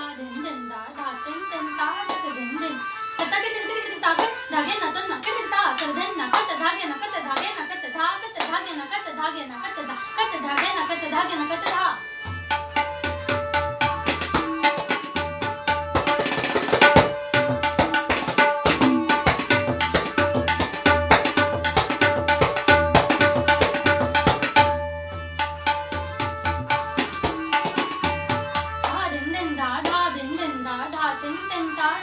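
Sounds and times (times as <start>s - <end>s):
tabla playing fast strokes: 12.3s - 30.0s.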